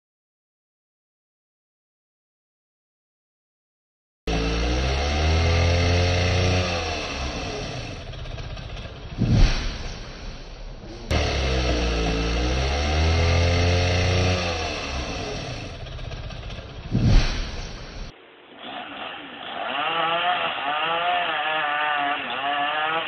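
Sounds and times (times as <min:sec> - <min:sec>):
chainsaws revving: 0:04.3 - 0:18.1, 0:19.4 - 0:23.0
loud thud: 0:09.0 - 0:11.9, 0:16.1 - 0:18.1.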